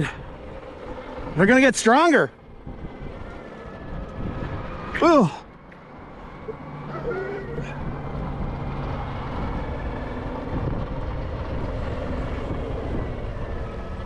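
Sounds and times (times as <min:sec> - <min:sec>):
wind and tyre noise: 0:00.0 - 0:14.0.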